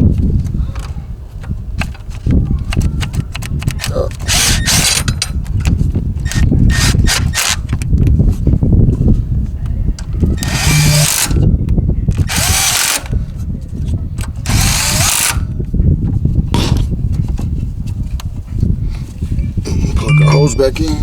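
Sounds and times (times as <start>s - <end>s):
impact wrench bursts: 4.3s - 5.1s, 10.4s - 11.4s, 14.5s - 15.4s.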